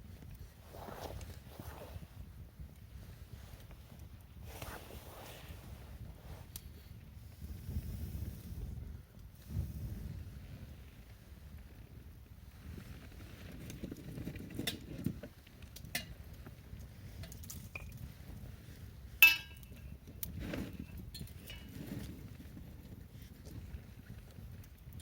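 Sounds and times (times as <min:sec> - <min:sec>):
metal clink: 0:19.2 - 0:19.8.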